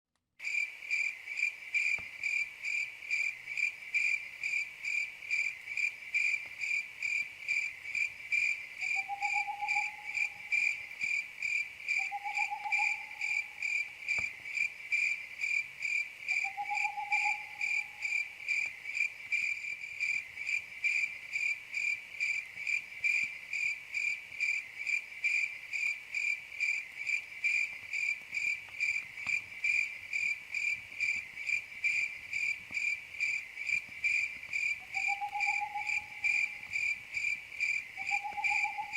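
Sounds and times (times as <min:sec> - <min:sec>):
crickets chirping: 0:00.4 - 0:38.9
low animal calls: 0:08.8 - 0:10.7, 0:38.0 - 0:38.9.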